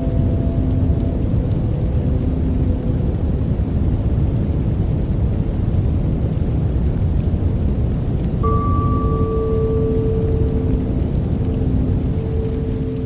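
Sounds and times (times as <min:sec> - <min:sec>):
deep white noise rushing: 0:00.0 - 0:13.0
faint held tone: 0:08.4 - 0:13.0.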